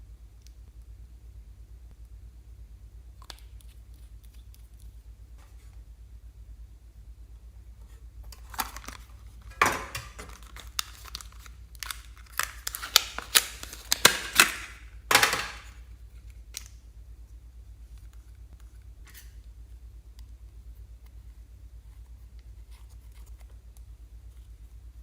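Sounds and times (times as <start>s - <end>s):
slime crackling and snapping: 10.3s - 14.8s.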